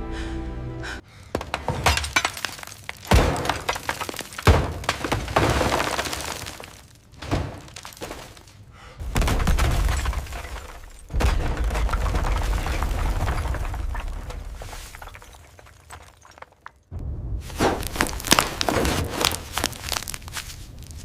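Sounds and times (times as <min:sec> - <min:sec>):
heavy crashing booms: 0:16.9 - 0:19.1.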